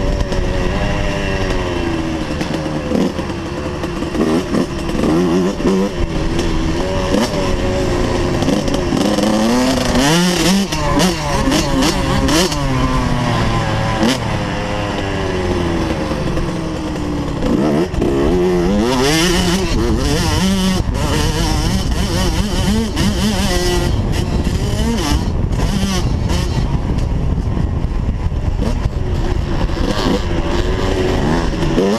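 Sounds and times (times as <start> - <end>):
dirt bike engine revving: 0.0 - 26.8, 28.2 - 31.9.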